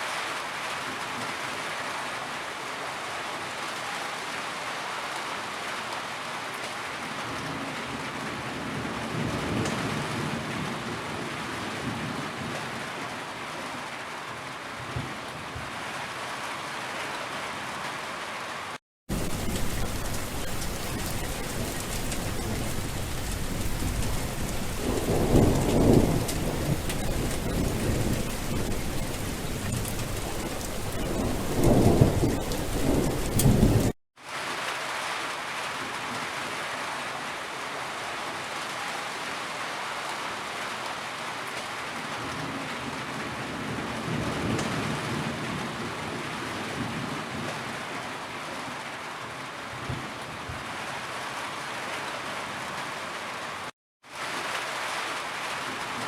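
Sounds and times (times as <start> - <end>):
heavy rain: 0.0 - 56.0
thunder rolling: 19.1 - 33.9.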